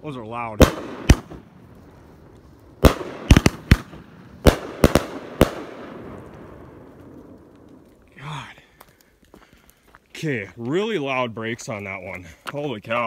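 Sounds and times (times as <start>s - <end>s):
fireworks bursting with loud bangs: 0.5s - 7.9s.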